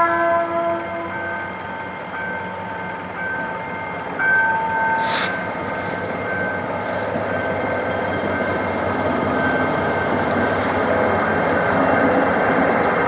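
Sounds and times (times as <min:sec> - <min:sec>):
air hiss: 0:05.0 - 0:05.5.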